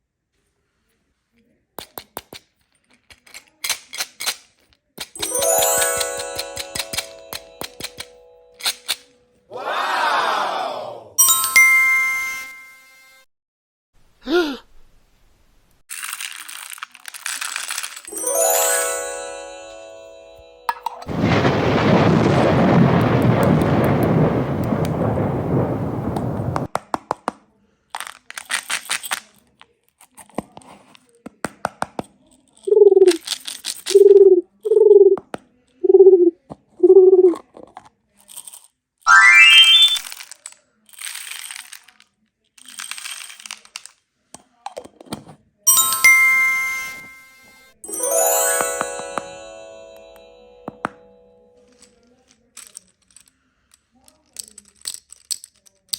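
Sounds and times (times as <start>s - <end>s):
bright chime: 5.2s - 9.0s, 11.2s - 13.2s, 18.1s - 21.4s, 39.1s - 40.0s, 45.7s - 51.6s
falling pitched tone: 39.1s - 40.0s.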